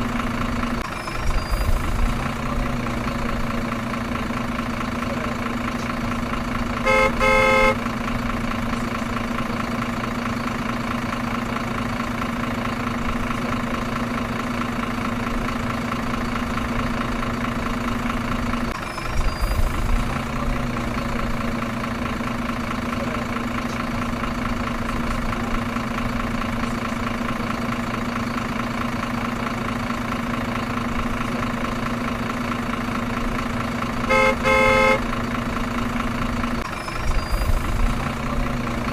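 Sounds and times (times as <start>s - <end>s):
truck engine idling: 0.0s - 38.9s
truck horn honk: 6.8s - 8.0s, 34.0s - 35.2s.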